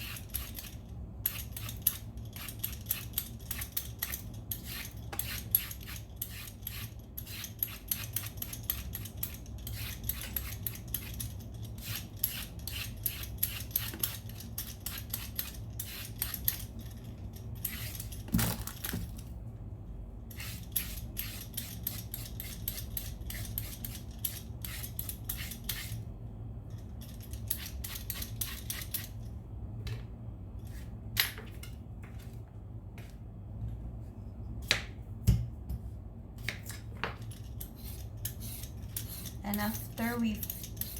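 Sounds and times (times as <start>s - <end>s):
vegetable peeler scraping: 0.0s - 16.7s, 20.3s - 26.0s, 27.4s - 29.2s, 37.6s - 40.9s.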